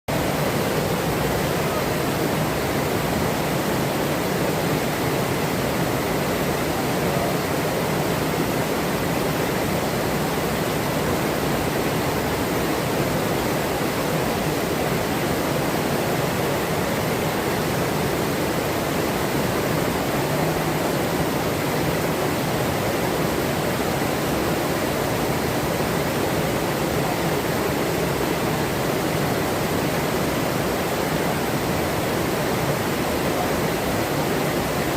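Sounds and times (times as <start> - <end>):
river water rushing: 0.1 - 34.9.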